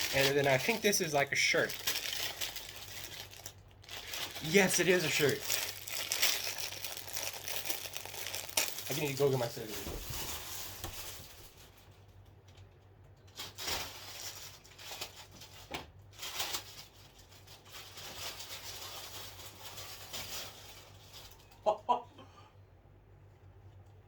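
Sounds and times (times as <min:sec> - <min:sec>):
packaging rustling: 0:00.0 - 0:11.9.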